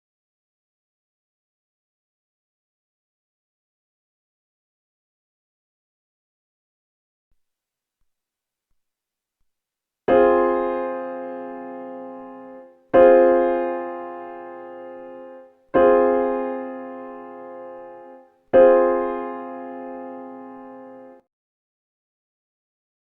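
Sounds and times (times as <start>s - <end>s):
piano chords: 10.1s - 21.2s.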